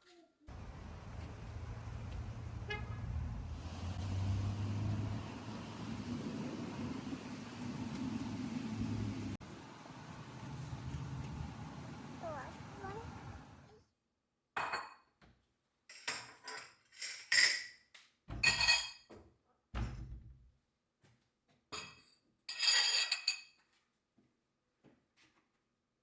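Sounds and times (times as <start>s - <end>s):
dishes and utensils clinking: 15.9s - 17.8s, 18.4s - 19.1s, 21.8s - 23.6s.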